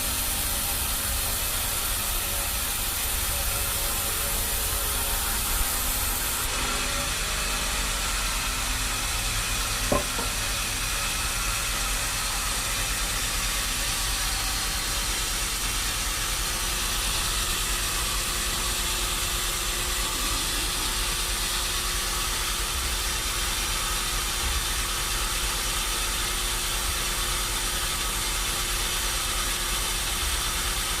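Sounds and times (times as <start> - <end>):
machinery hissing: 0.0 - 7.2.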